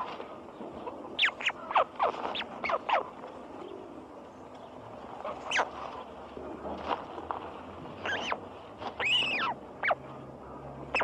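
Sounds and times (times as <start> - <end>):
steady background hiss: 0.0 - 11.0
birds squealing: 0.9 - 3.1, 5.2 - 5.7, 8.0 - 8.4, 9.0 - 10.1.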